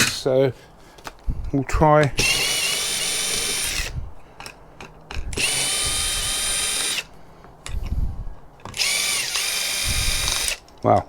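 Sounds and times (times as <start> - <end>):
power drill whining: 2.2 - 4.1, 5.2 - 7.2, 8.7 - 10.6.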